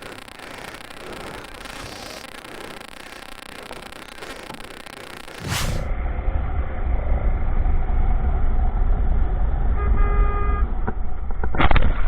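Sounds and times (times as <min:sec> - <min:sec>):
vehicle horn: 0:09.7 - 0:10.8.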